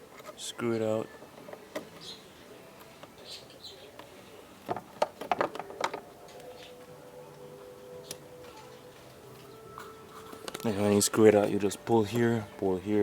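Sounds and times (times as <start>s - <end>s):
faint bird chirps: 0.9s - 4.0s.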